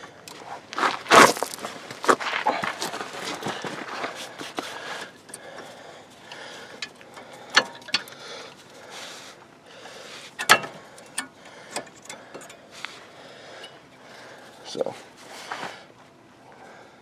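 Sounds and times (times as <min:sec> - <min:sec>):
metal parts clicking and clinking: 0:06.7 - 0:08.6, 0:10.4 - 0:12.6.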